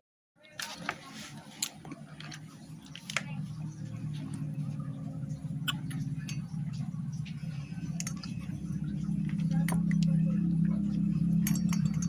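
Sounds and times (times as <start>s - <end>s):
steady low hum: 0.8s - 12.0s
tools and metal parts clicking: 5.7s - 6.7s, 7.8s - 10.2s, 10.8s - 12.0s.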